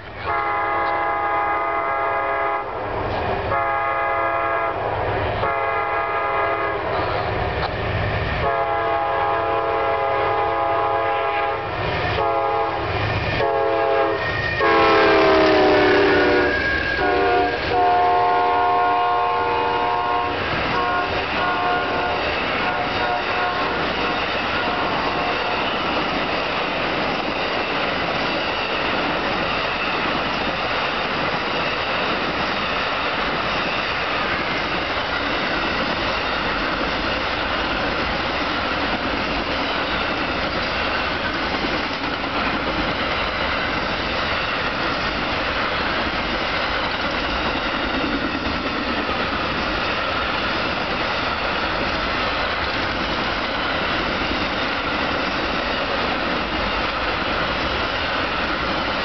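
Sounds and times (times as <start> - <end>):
passenger train rolling past: 0.0 - 59.0
train air horn blasts: 0.2 - 2.8, 3.5 - 4.8, 5.4 - 7.2, 8.4 - 25.7.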